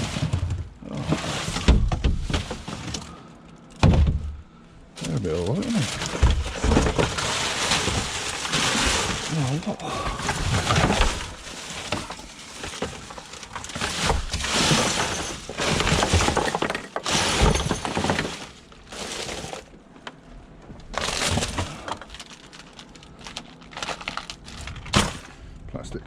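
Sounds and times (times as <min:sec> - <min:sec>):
scrap clattering and crashing: 0:00.0 - 0:20.1, 0:20.8 - 0:25.4.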